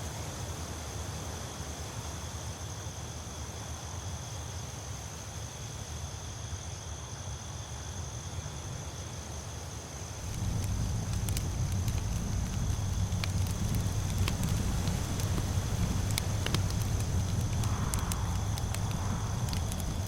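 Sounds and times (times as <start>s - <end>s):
crickets trilling: 0.1s - 20.0s
fire crackling and popping: 10.2s - 20.0s
low rumble: 10.2s - 20.0s.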